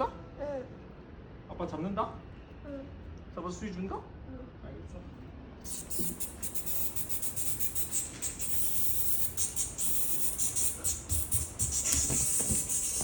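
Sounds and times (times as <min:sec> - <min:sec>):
cicadas buzzing: 0:05.6 - 0:13.0.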